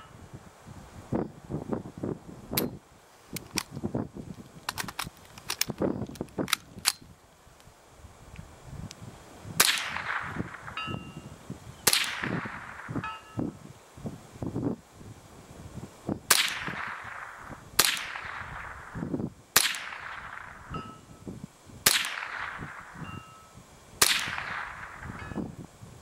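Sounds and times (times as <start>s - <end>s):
wind rumbling on microphone: 0.0s - 26.0s
rifle shots: 9.6s - 10.8s, 11.8s - 13.1s, 16.3s - 20.7s, 21.8s - 23.1s, 24.0s - 25.3s.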